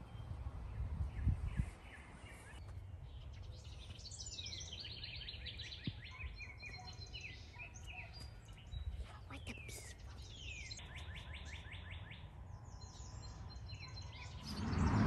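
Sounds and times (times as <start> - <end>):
wind on microphone: 0.0 - 2.3, 14.3 - 15.0
songbird singing: 0.0 - 15.0.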